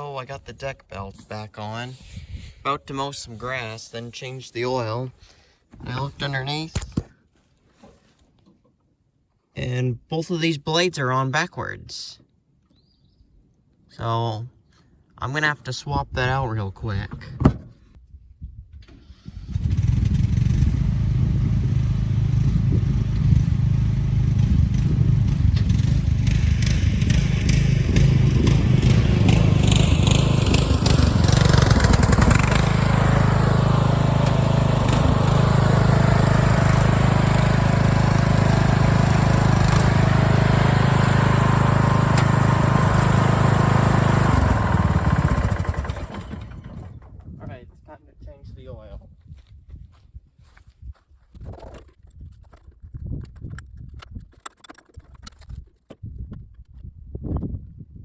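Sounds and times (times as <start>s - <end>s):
mower engine running: 19.3s - 47.2s.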